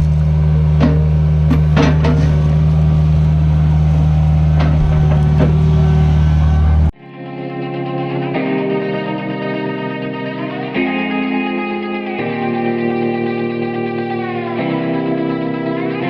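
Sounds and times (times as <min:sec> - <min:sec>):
heavy equipment engine running: 0:00.0 - 0:07.0
electric guitar music: 0:00.0 - 0:16.0
clanks and knocks: 0:00.8 - 0:02.9, 0:04.6 - 0:06.0.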